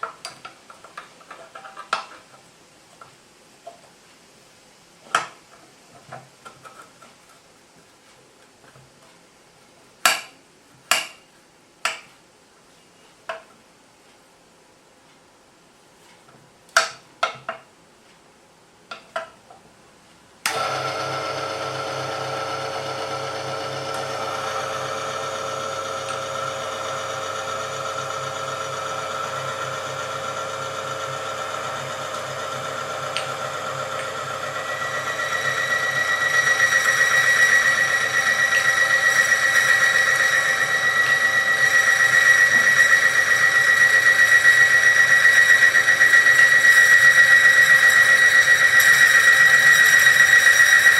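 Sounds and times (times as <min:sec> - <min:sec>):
small machine motor running: 0:20.5 - 0:50.9
high whine: 0:23.9 - 0:50.9.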